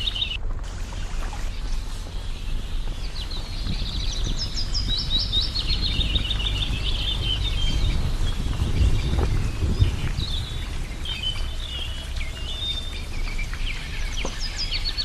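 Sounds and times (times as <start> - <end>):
songbird twittering: 0.0 - 0.4, 1.1 - 15.0
low rumble: 0.0 - 15.0.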